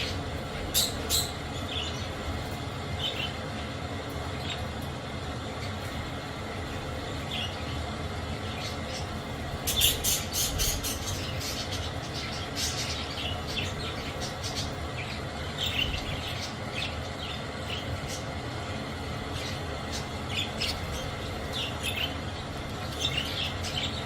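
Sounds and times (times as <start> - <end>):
budgerigars chirping and squawking: 0.0 - 3.7, 8.4 - 18.3, 19.4 - 24.0
steady background noise: 0.0 - 24.0.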